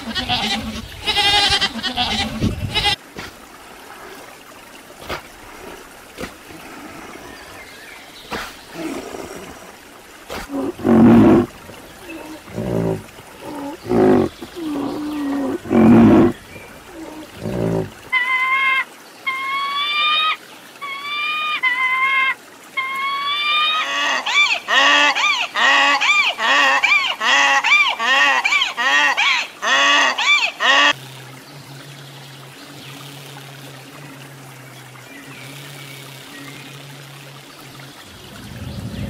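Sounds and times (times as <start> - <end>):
donkeys braying: 8.3 - 18.1
low animal call: 10.3 - 18.6.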